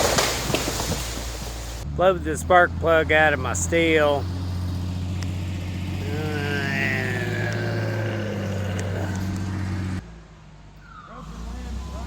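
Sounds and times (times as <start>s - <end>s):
falling voice-like sound: 6.0s - 9.5s.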